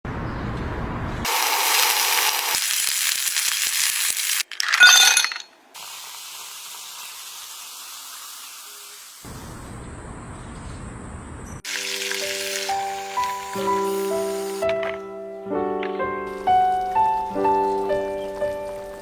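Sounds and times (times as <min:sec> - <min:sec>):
sizzling hiss: 0:01.3 - 0:04.5, 0:05.8 - 0:09.8, 0:11.6 - 0:15.0, 0:16.2 - 0:19.0
clinking clatter: 0:04.5 - 0:05.5.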